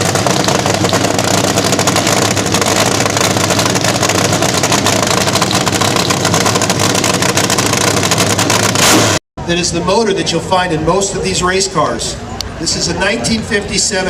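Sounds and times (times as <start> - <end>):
engine running at fast idle: 0.0 - 9.2.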